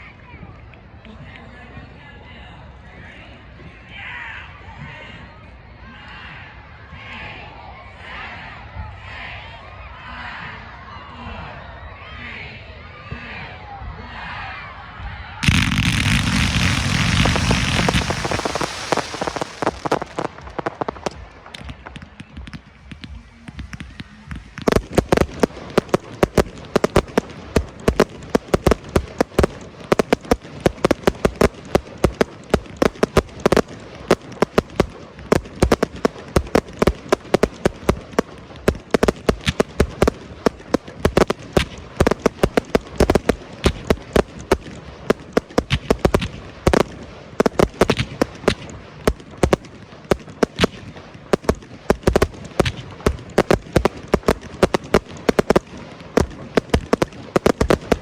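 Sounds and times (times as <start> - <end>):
crackling of bursting shells: 15.4 - 58.0
firework bangs: 15.4 - 58.0.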